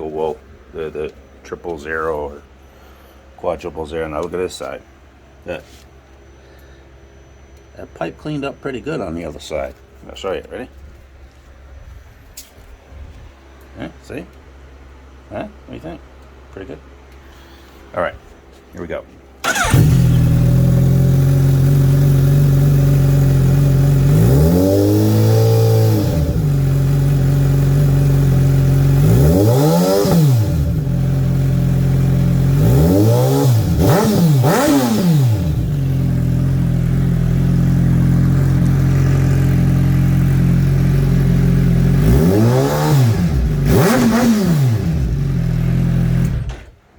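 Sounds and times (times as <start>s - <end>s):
motorcycle engine idling: 19.4s - 29.3s, 30.5s - 32.7s, 33.6s - 42.4s, 43.0s - 46.5s
motorcycle throttle blips: 19.4s - 46.8s.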